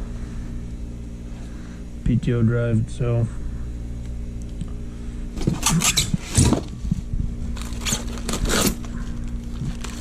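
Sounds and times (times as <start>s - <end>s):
steady low hum: 0.0s - 10.0s
packaging rustling and scraping: 5.4s - 10.0s.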